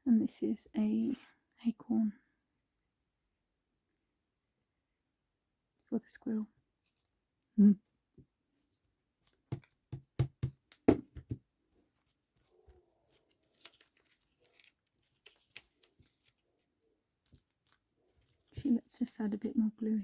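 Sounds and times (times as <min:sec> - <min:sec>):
quick taps: 0:09.5 - 0:11.4
faint paper rustling: 0:10.7 - 0:19.6.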